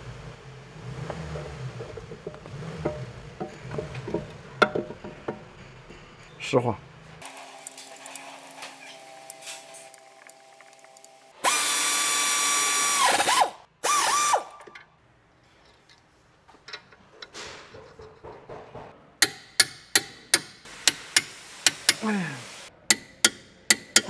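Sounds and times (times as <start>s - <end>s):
power tool whirring: 7.2s - 14.6s.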